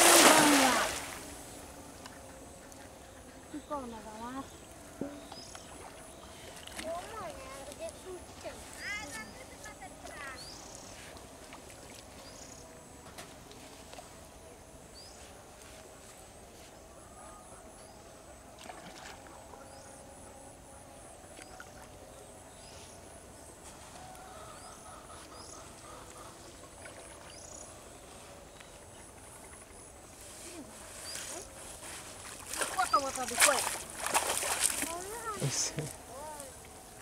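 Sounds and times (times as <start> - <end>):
low background hum: 0.0 - 37.0
birds chirping: 32.7 - 33.7.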